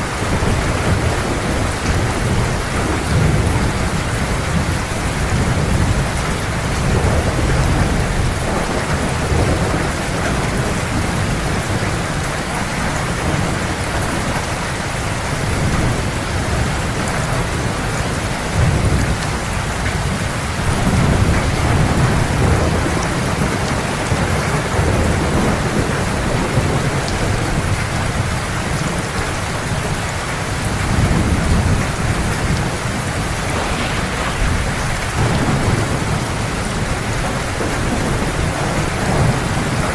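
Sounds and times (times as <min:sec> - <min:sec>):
low rolling thunder: 0:00.0 - 0:12.2, 0:30.9 - 0:39.9
heavy rain falling: 0:00.0 - 0:39.9.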